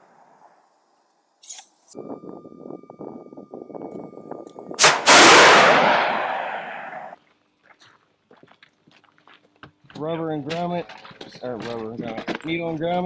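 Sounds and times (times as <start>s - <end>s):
thin steady high tone: 1.9s - 4.8s
missile rushing roar: 4.8s - 7.2s
sharp bang: 4.8s - 7.2s.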